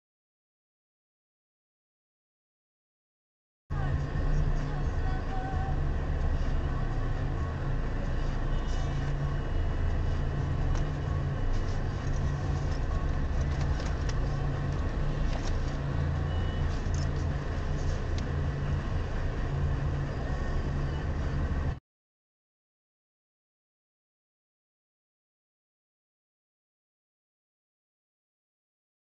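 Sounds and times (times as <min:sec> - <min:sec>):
car engine idling: 0:03.7 - 0:21.8.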